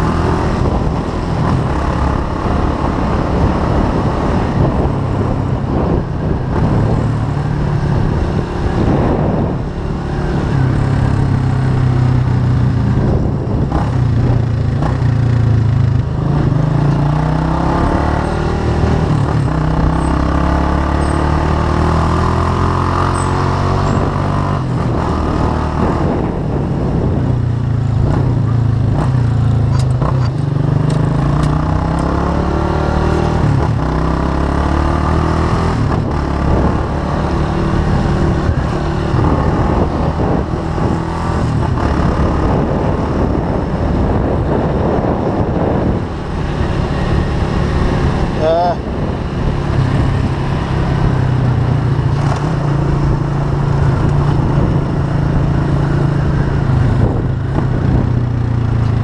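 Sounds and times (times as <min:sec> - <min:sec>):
wind rushing: 0:00.0 - 0:14.8, 0:35.1 - 0:58.4
motorcycle engine revving: 0:00.0 - 0:59.0.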